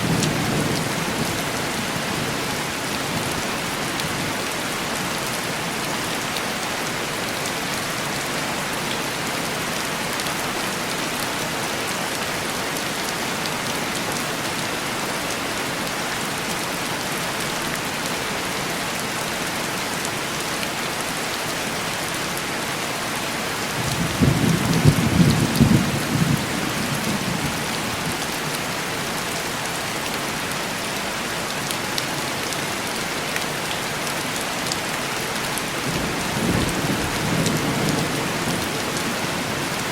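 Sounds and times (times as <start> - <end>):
heavy rain on a window: 0.0 - 39.9
thunder rumbling: 23.8 - 28.0.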